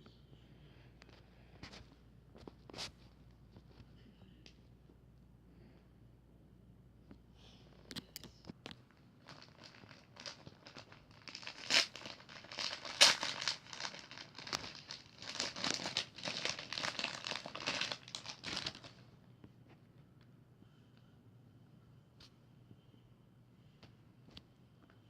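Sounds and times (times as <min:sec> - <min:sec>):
packaging crinkling: 0:08.6 - 0:19.0.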